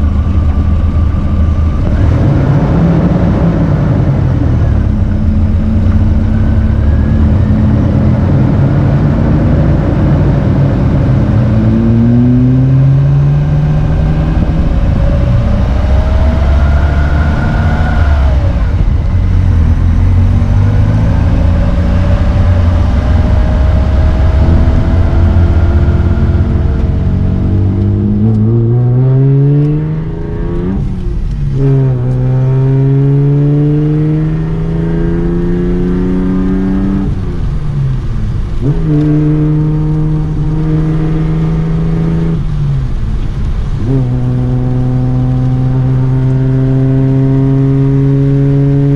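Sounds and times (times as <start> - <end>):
car engine accelerating hard: 0.0 - 48.9.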